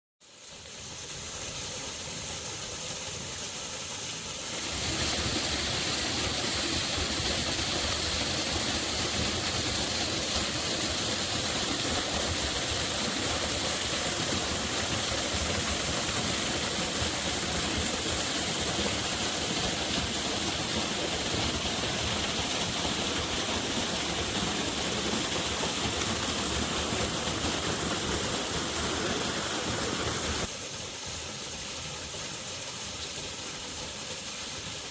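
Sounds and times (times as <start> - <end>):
waterfall rushing: 4.4 - 30.6.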